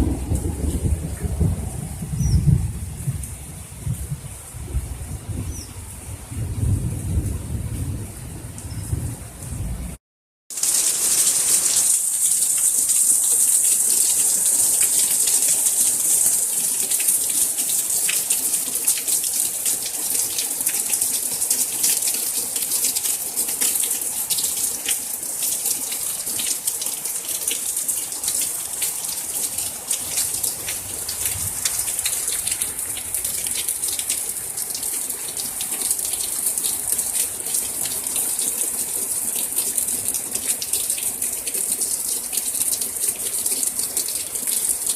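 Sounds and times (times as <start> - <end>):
heavy rain downpour: 0.0 - 44.9
close raindrops ticking: 10.5 - 44.9.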